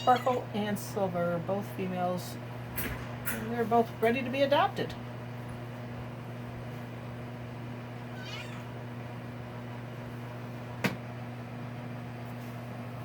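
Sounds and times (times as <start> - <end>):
kitten meowing: 0.0 - 0.5, 8.1 - 8.8
steady low hum: 0.0 - 13.0.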